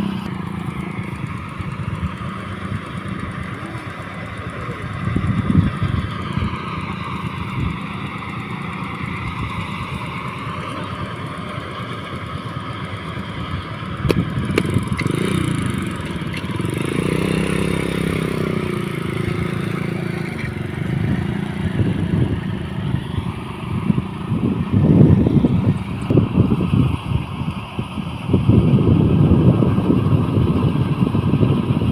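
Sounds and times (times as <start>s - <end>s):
vehicle engine running: 0.0s - 31.9s
rough bumps: 14.0s - 18.4s.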